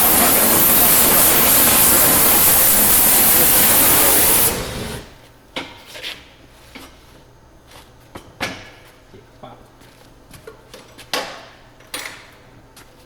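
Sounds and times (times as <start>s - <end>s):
gas torch hissing: 0.0s - 5.2s.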